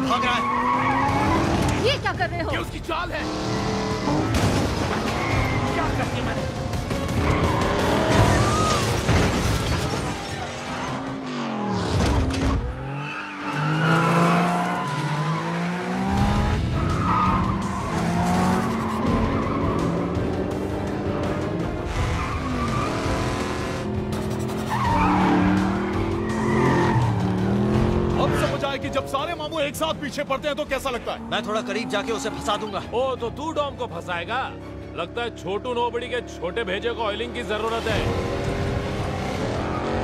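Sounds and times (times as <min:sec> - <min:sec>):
tyres squealing: 0:00.0 - 0:02.0, 0:24.5 - 0:27.4
action music score: 0:00.0 - 0:35.6, 0:37.1 - 0:40.0
car engines revving: 0:00.0 - 0:40.0.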